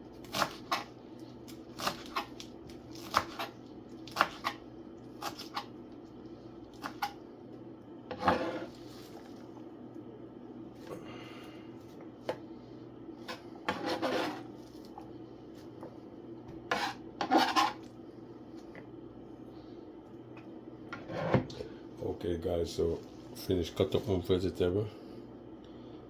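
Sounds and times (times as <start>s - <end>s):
steady low hum: 0.0s - 26.0s
knife and dishes scraping: 8.1s - 9.3s, 13.3s - 14.5s, 16.7s - 17.9s, 20.9s - 21.5s.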